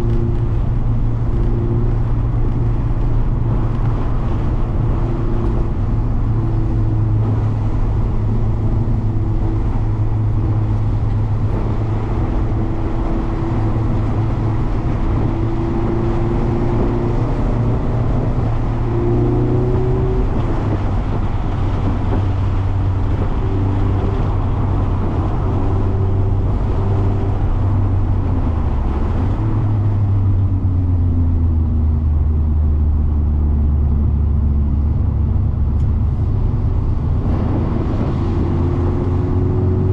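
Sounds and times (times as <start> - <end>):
car engine accelerating: 0.0 - 39.9
road and wind noise: 0.0 - 39.9.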